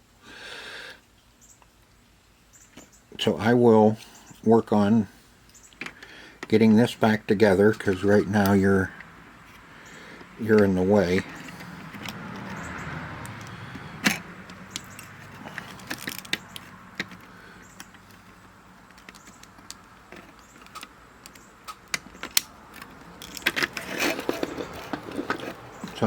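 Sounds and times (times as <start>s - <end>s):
plastic case clicks and rattles: 13.2s - 26.0s.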